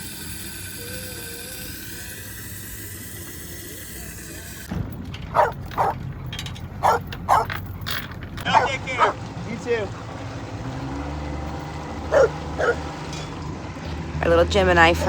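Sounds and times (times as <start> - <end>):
dog barking: 5.3 - 6.0, 6.8 - 7.6, 8.4 - 9.2, 12.1 - 12.9.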